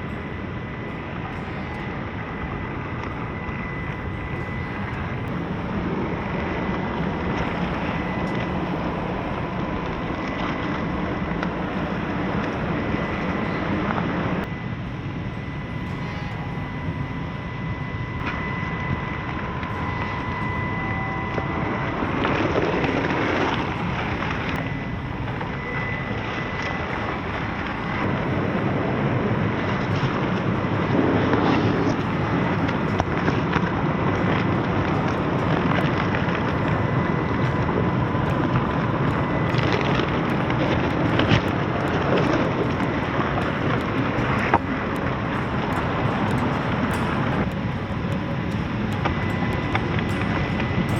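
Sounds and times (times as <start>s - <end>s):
faint motor and gears whine: 0.0s - 50.9s.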